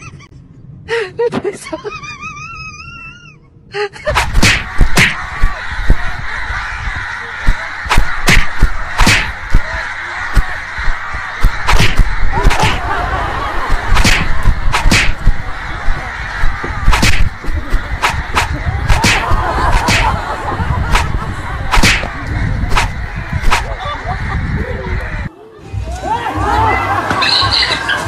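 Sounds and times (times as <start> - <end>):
rooster wings flapping: 4.1 - 23.7.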